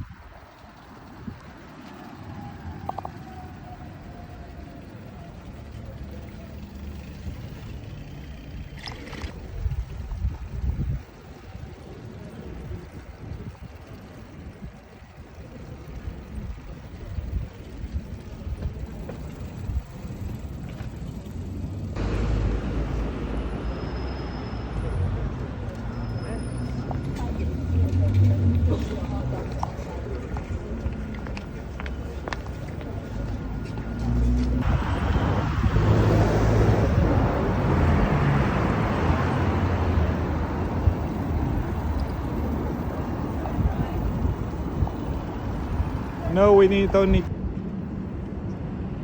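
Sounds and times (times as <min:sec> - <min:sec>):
wind and road noise: 0:00.0 - 0:49.0
motor vehicle passing by: 0:20.3 - 0:47.3.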